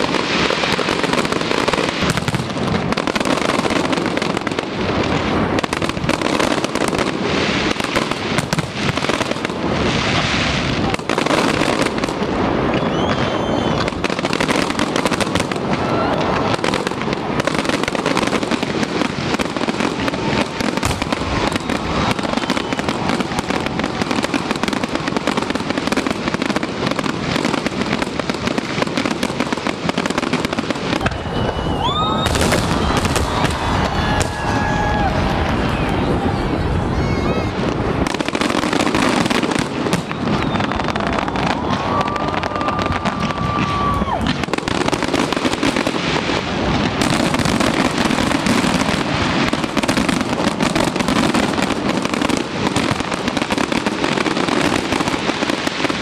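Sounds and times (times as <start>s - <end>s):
fireworks bangs and crackling: 0.0s - 56.0s
faint whistles of rising shells: 12.8s - 13.9s, 40.0s - 41.3s.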